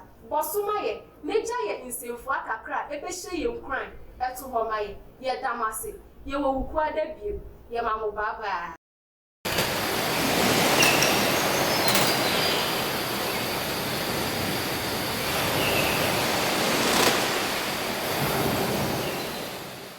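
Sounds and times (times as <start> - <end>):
steady rushing noise: 12.6 - 19.9.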